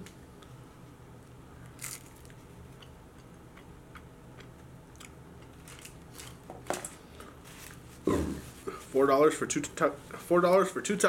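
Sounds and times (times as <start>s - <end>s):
crisp bite into food: 1.8s - 2.4s.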